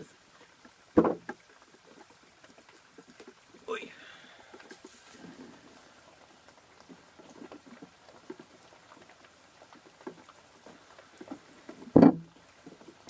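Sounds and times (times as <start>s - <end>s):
rain pattering: 0.0s - 13.0s
loud thump: 1.0s - 1.2s, 12.0s - 12.2s.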